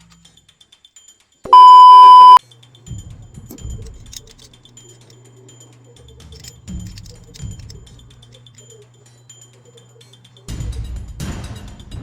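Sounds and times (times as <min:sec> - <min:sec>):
faint low hum: 0:01.5 - 0:02.4
loud electronic beep: 0:01.5 - 0:02.4.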